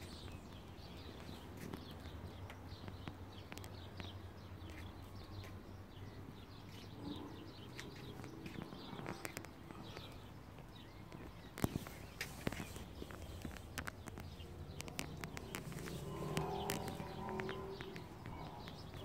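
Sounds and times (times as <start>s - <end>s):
small birds chirping: 0.0s - 19.0s
faint clicks: 7.5s - 19.0s.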